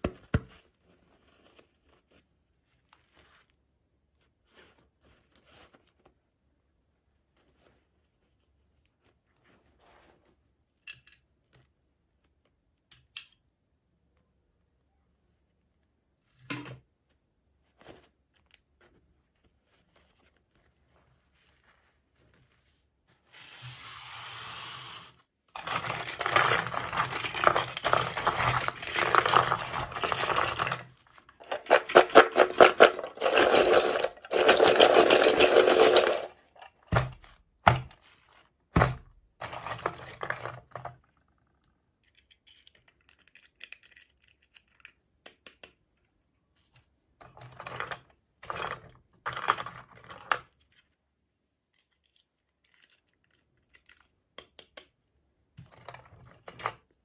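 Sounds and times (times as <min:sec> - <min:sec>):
packaging rustling and crinkling: 0:25.6 - 0:37.3.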